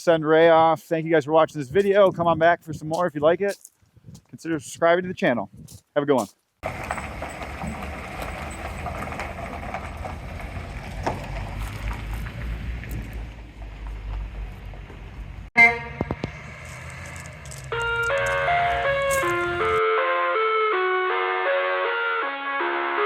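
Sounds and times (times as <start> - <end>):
diesel engine rumbling: 6.6 - 19.8
loud tone: 15.6 - 16.2
music: 17.9 - 23.0.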